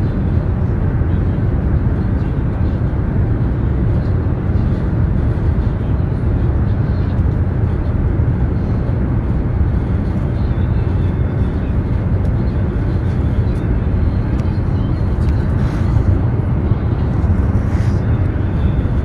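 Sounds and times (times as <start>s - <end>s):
train rumble and hiss: 10.4s - 19.0s.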